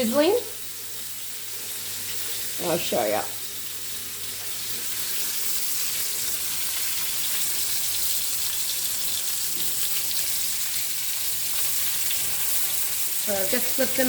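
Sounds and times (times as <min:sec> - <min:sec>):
chicken sizzling in frying pan: 0:00.0 - 0:14.0.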